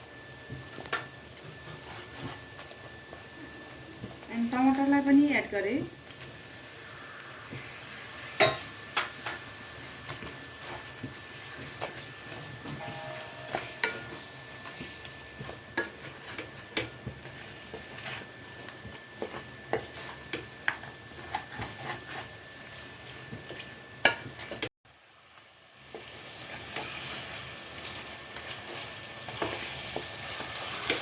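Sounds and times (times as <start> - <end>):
curry sizzling in a pan: 0.0 - 31.0
spoon scraping a pan: 7.5 - 24.7, 28.5 - 31.0.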